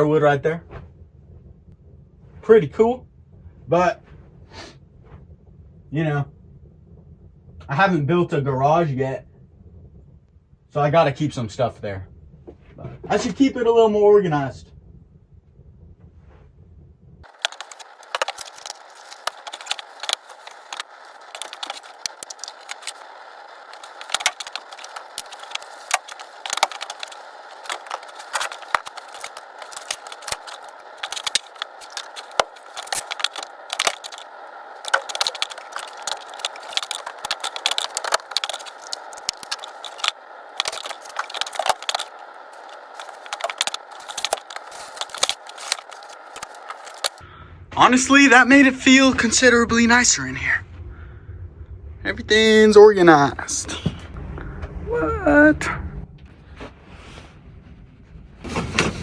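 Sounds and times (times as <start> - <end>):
household items clinking and rattling: 17.2 - 47.2, 58.4 - 59.0.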